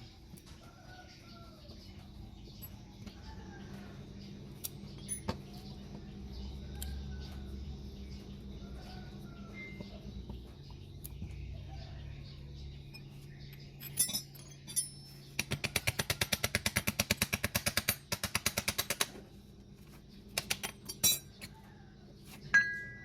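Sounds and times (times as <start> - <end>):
metal tool knocks and clinks: 5.0 - 5.4, 13.7 - 15.2, 20.6 - 21.5.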